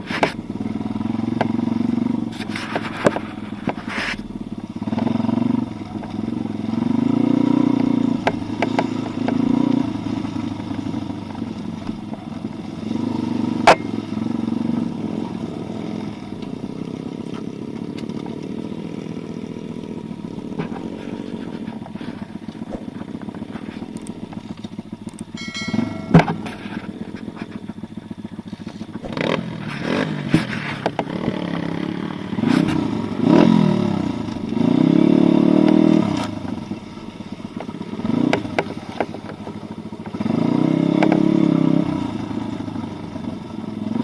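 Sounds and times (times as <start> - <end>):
pit bike engine revving: 0.5 - 25.6, 27.8 - 42.9
sharp knock: 25.4 - 26.9.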